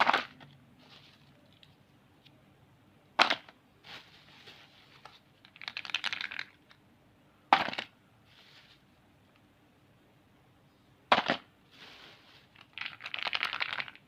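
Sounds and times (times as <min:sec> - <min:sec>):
soft rustling: 0:00.8 - 0:01.9, 0:03.8 - 0:05.2, 0:08.2 - 0:09.0, 0:11.7 - 0:12.7
wrapper crinkling: 0:03.9 - 0:06.7, 0:11.8 - 0:14.0.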